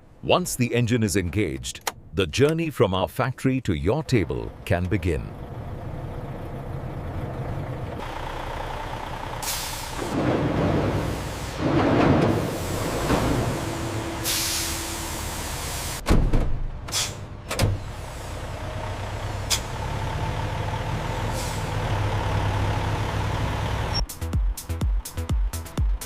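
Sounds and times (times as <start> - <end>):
truck engine running: 3.7 - 26.0
truck air brakes hissing: 9.2 - 16.0, 16.8 - 19.9, 21.2 - 22.0
truck clunks: 9.3 - 24.0
electronic music with a beat: 24.0 - 26.0.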